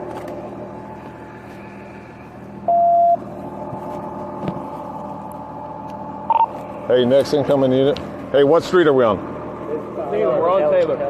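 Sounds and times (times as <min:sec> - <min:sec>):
engine idling: 0:00.0 - 0:11.0
police radio beep: 0:02.7 - 0:03.2, 0:06.3 - 0:06.5.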